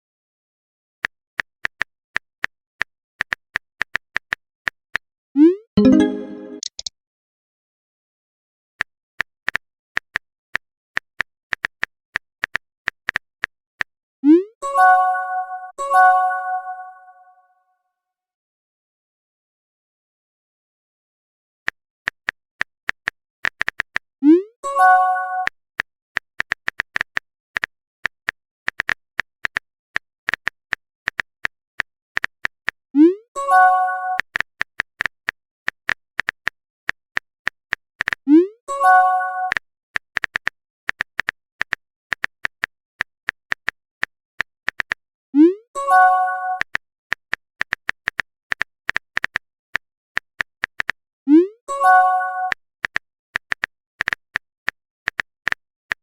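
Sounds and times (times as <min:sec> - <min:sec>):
phone keyboard clicks: 0:05.8 - 0:06.9, 0:50.2 - 0:51.0, 0:52.5 - 0:54.5, 0:55.1 - 0:56.0
phone keyboard typing clicks: 0:05.8 - 0:06.9, 0:39.4 - 0:43.8, 0:46.5 - 0:49.4, 0:50.2 - 0:51.0, 0:52.4 - 0:56.0.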